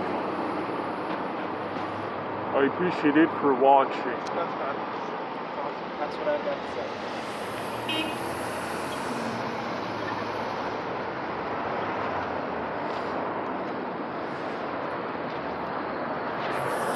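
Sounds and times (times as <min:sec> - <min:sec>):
street traffic noise: 0:00.0 - 0:16.9.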